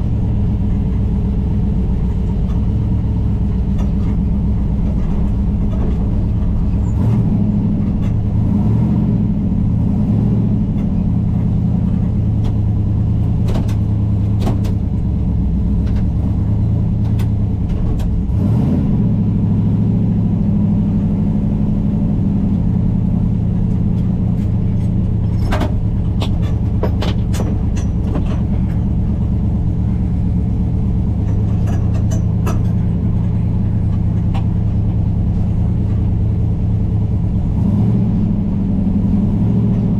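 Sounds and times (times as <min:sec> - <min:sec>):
vehicle engine rumbling: 0:00.0 - 0:39.9
clicks and knocks: 0:23.7 - 0:29.4.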